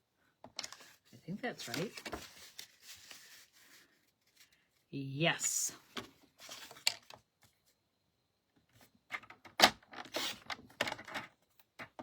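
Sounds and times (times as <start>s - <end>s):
paper rustling: 0.6s - 4.7s.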